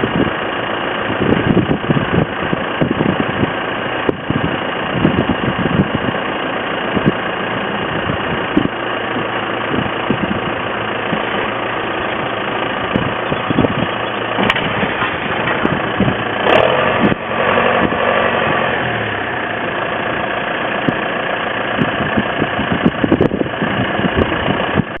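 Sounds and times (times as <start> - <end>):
tractor engine idling: 0.0 - 25.0.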